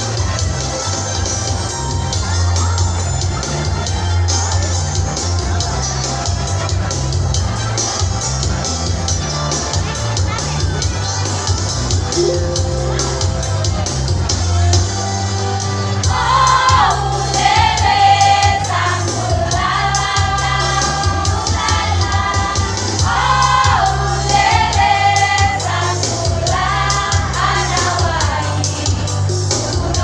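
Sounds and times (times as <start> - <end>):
choir singing: 12.2 - 13.8, 16.1 - 28.9.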